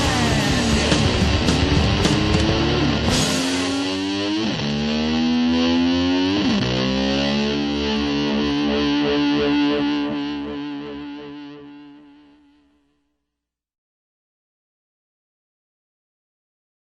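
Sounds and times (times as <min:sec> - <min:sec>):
distorted electric guitar: 0:00.0 - 0:12.8.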